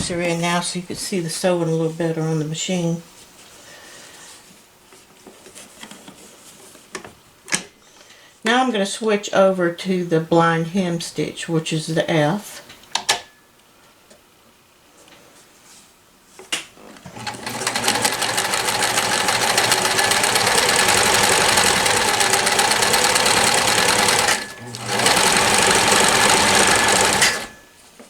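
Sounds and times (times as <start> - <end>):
sewing machine click: 17.0 - 27.6
sewing machine needle clatter: 17.0 - 27.6.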